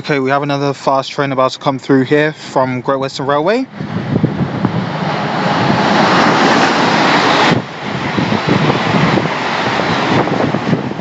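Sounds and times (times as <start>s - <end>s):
train rushing past: 3.7s - 11.0s.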